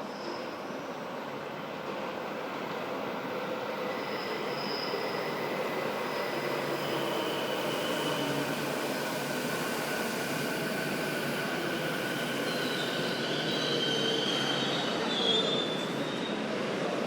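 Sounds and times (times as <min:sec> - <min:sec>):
electric train rumbling on rails: 0:00.0 - 0:17.0
high-pitched wheel squeal: 0:03.8 - 0:08.6, 0:11.8 - 0:16.5.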